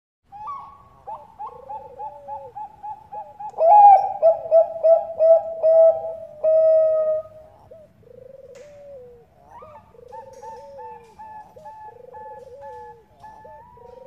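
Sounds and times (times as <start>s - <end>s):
dove staccato cooing song: 0.3s - 14.0s.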